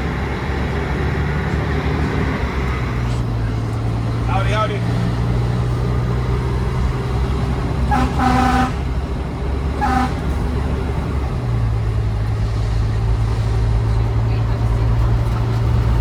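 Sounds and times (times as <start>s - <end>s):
truck engine drone: 0.0s - 16.0s
fire truck horn: 7.8s - 10.6s.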